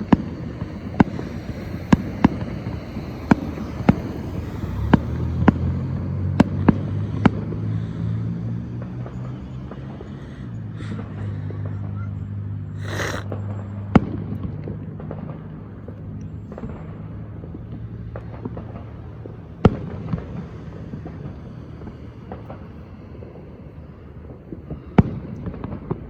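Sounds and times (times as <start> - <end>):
firework hissing burst: 0.0 - 5.8, 6.6 - 13.6
small firework pops: 0.0 - 23.5, 24.2 - 26.0
firework bangs: 0.0 - 26.0.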